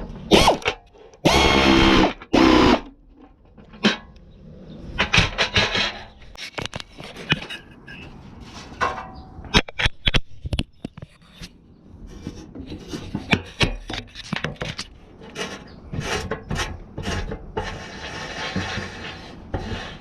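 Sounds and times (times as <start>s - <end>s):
power tool bursts: 0.3s - 2.9s.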